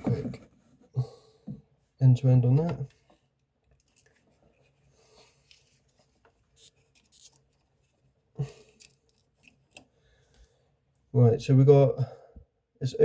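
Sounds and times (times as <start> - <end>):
faint rubbing and light clicks: 2.5 - 10.5.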